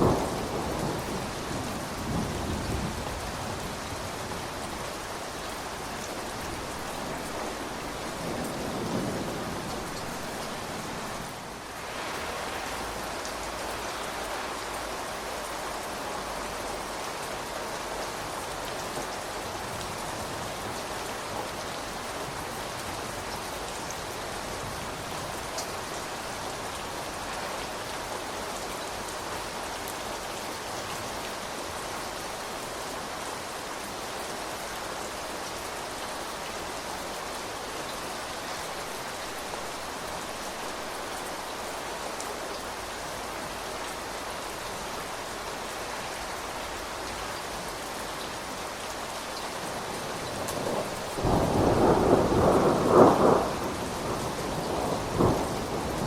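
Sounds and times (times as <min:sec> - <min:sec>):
steady rain falling: 0:00.0 - 0:56.0
loud thunder rumble: 0:50.6 - 0:56.0.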